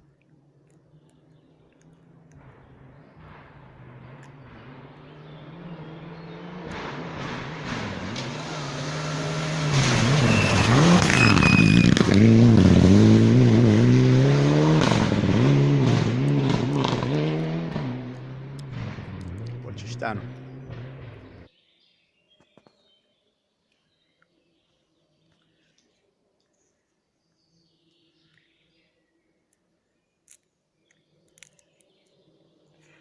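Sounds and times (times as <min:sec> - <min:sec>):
rally car engine at full throttle: 0:02.1 - 0:21.5.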